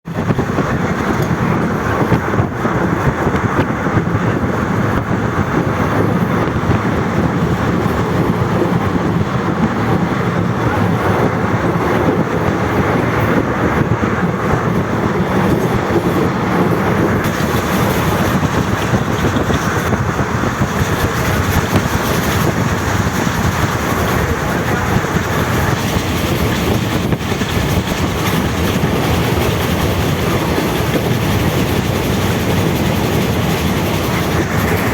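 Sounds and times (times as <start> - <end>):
train wheels rumbling on rails: 0.0 - 34.9.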